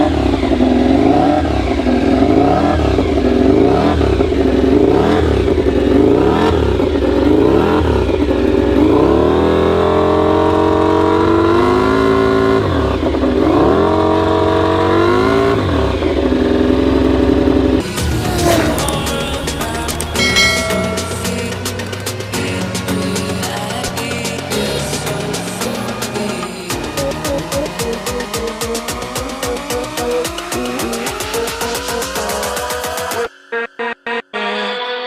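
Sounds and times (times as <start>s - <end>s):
racing motorcycles passing: 16.3s - 26.7s.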